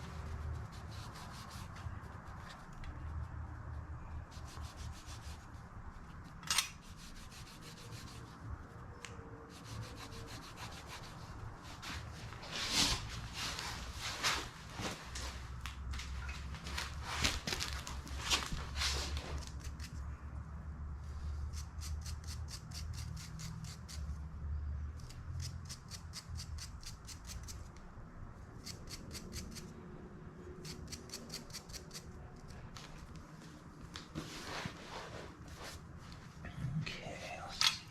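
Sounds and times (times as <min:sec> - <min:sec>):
scraping on metal parts: 0:06.1 - 0:08.2
low steady hum: 0:22.8 - 0:37.9.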